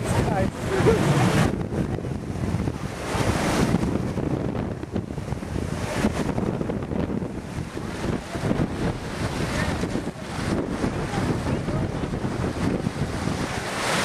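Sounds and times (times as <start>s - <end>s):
water rushing along hull: 0.0s - 14.0s
wind buffeting microphone: 0.0s - 14.0s.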